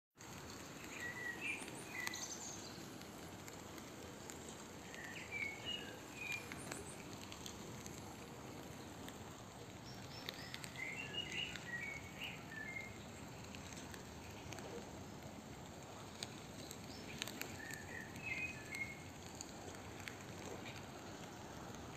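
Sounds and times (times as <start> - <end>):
steady outdoor hiss: 0.2 - 21.9
small songbird chirping: 0.4 - 3.0, 4.3 - 14.9, 16.1 - 19.2.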